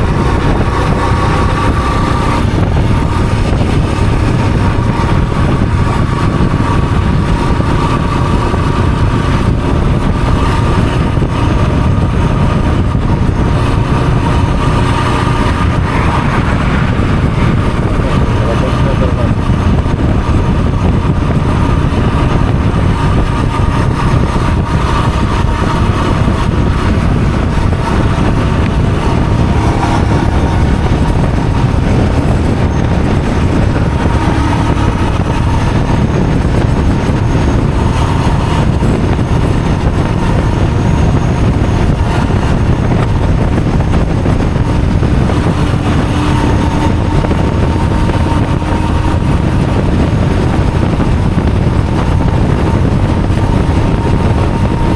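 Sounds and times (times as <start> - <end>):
vehicle low rumble: 0.0 - 54.9.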